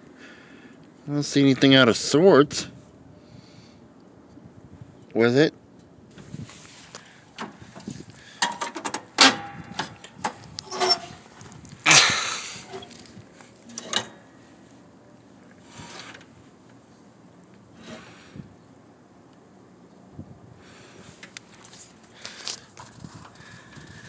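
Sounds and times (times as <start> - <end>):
faint rustles: 6.1 - 8.8, 20.6 - 24.0.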